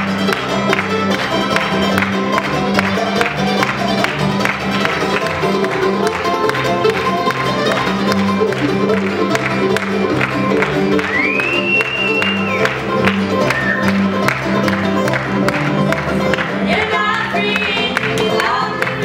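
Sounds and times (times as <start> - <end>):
steady bass line: 0.0 - 19.0
string band playing: 0.0 - 19.0.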